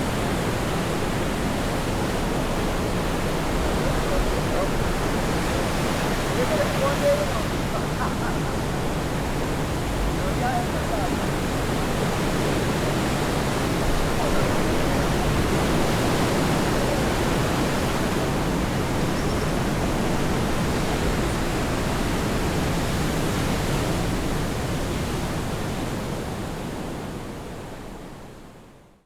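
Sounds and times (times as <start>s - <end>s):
steady outdoor rushing noise: 0.5s - 22.2s.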